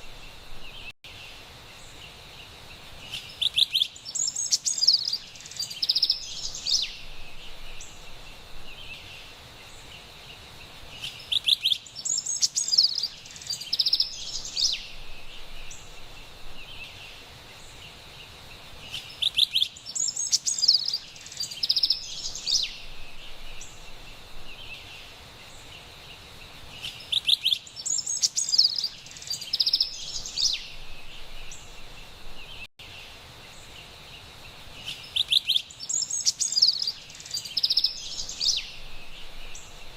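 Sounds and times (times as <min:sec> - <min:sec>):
faint background hiss: 0:00.0 - 0:39.9
wren singing: 0:03.0 - 0:10.1, 0:10.9 - 0:18.0, 0:18.8 - 0:39.9.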